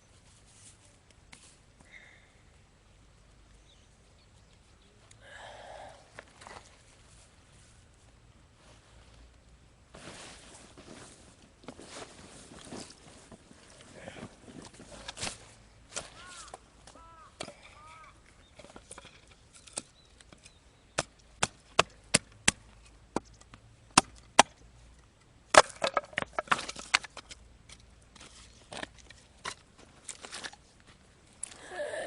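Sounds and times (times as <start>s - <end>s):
wood cracking and splintering: 25.5s - 27.8s.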